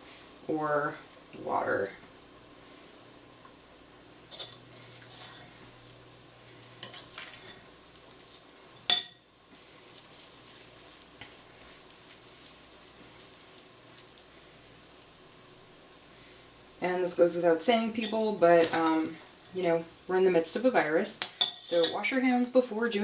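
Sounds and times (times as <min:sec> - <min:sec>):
faint steady hiss: 0:00.0 - 0:23.0
utensils knocking on pot: 0:08.9 - 0:09.3.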